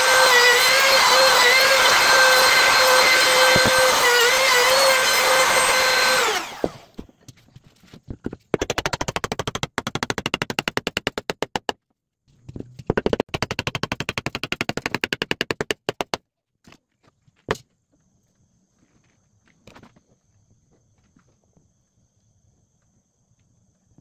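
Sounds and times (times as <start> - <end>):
power tool motor running: 0.0 - 7.0
fast sharp taps: 8.5 - 11.8.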